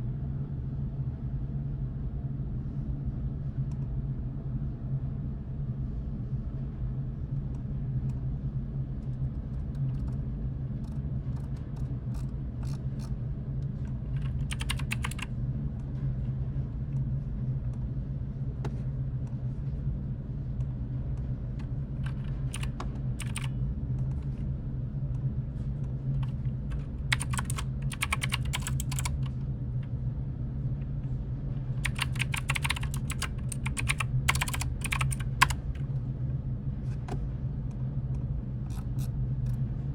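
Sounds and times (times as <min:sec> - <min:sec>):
steady low hum: 0:00.0 - 0:39.9
keyboard typing: 0:11.4 - 0:12.8, 0:14.1 - 0:15.3, 0:22.0 - 0:23.5, 0:26.2 - 0:29.3, 0:31.8 - 0:35.8.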